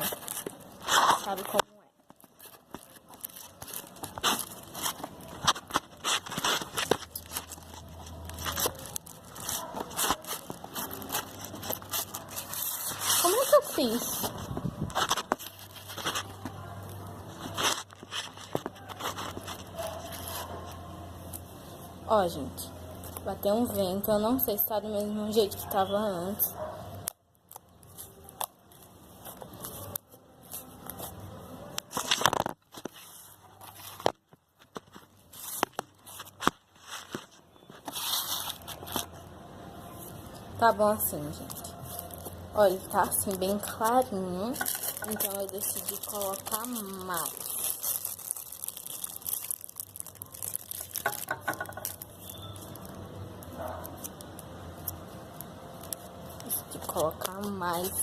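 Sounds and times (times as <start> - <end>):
slime squishing in a dish: 0.0 - 21.6, 40.1 - 58.0.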